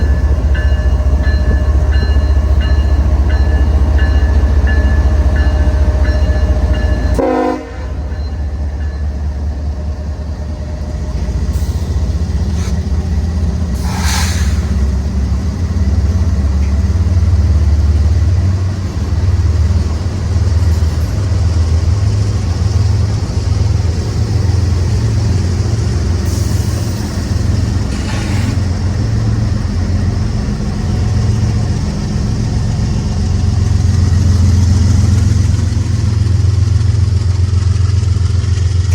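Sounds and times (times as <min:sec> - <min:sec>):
diesel locomotive engines rumbling: 0:00.0 - 0:38.9
train air horn: 0:07.2 - 0:08.1.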